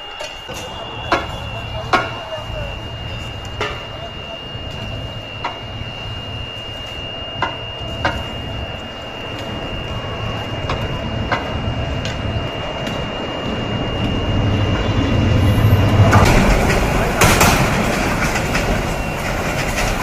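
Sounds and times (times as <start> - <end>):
train rumbling on rails: 0.0 - 20.0
sharp rail clicks: 15.8 - 20.0.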